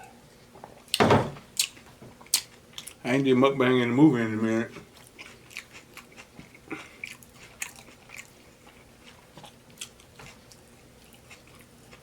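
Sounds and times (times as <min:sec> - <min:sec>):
chewing with mouth clicks and crunches: 0:00.8 - 0:03.1, 0:04.7 - 0:12.0.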